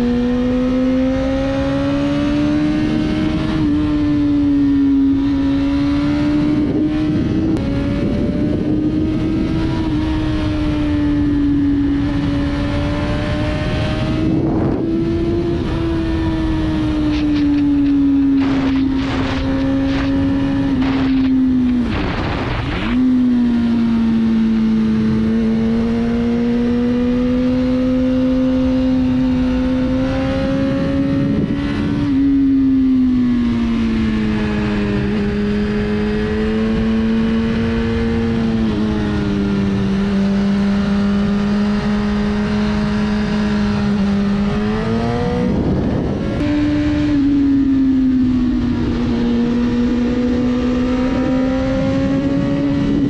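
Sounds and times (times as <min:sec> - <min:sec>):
wind buffeting microphone: 0:01.5 - 0:53.0
motorcycle engine pulling: 0:16.6 - 0:23.2.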